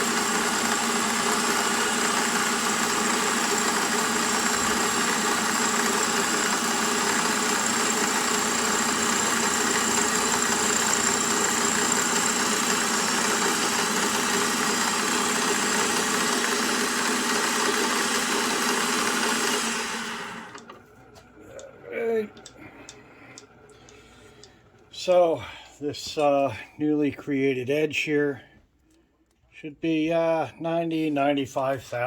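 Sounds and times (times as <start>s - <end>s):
milling machine whine: 0.0s - 25.4s.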